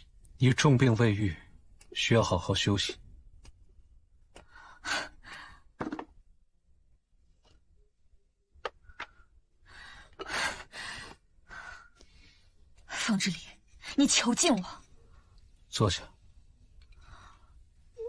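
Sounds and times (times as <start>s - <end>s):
person breathing and sighing: 9.0s - 12.6s.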